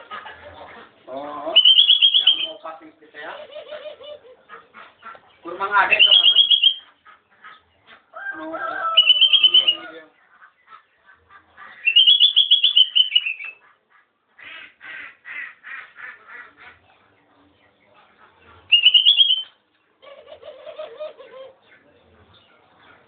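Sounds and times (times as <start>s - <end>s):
bird calling high notes: 1.5s - 2.6s, 5.9s - 6.9s, 9.0s - 9.9s, 11.9s - 13.6s, 18.7s - 19.6s.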